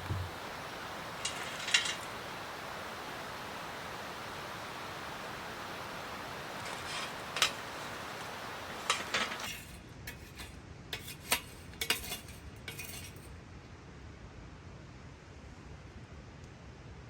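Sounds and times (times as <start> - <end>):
steady hiss: 0.0 - 13.2
tableware clinking: 0.0 - 13.3.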